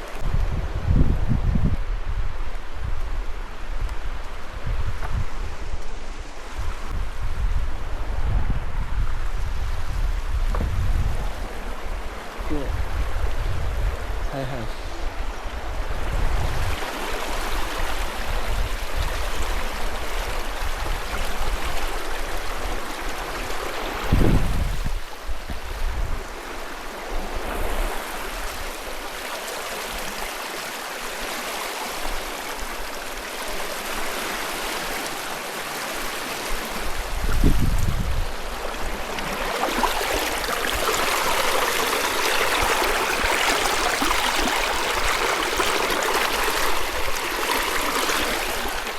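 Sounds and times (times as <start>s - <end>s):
river water rushing over rocks: 27.8s - 48.9s.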